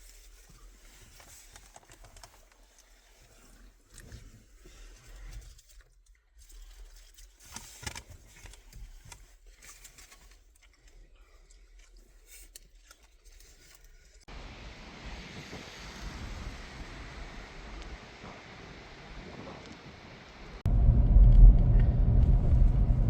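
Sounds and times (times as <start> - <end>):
windy hiss with low rumble: 14.3 - 23.0.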